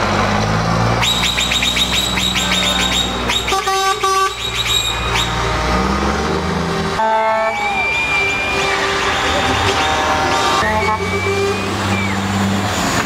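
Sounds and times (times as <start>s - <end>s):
truck engines running: 0.0s - 13.0s
horn toots: 1.0s - 5.5s, 6.9s - 12.3s.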